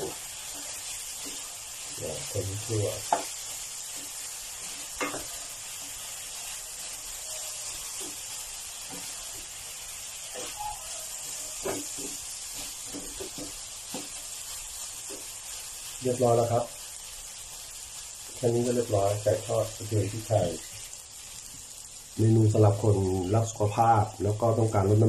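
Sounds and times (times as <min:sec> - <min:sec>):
chicken sizzling in a pan: 0:00.0 - 0:25.0
spatula scraping a pan: 0:04.0 - 0:15.5.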